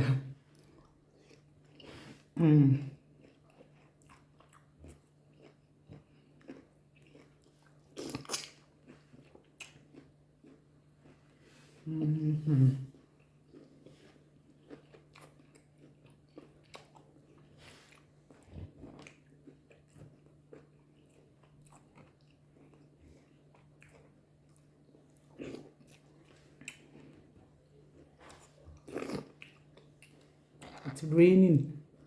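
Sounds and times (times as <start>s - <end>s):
person chewing and biting: 3.1s - 11.2s, 13.2s - 30.8s
mouth smacks and clicks: 8.0s - 8.6s.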